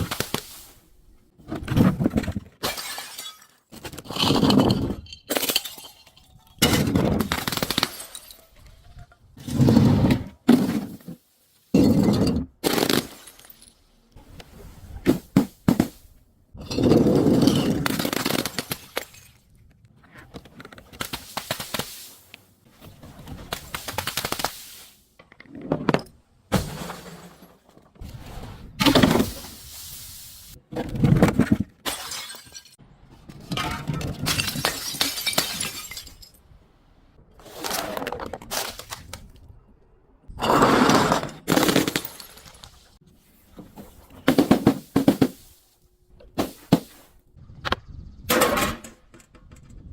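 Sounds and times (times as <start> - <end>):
glass breaking and crunching: 2.6 - 8.6, 31.8 - 32.8, 33.6 - 36.5, 41.4 - 42.8.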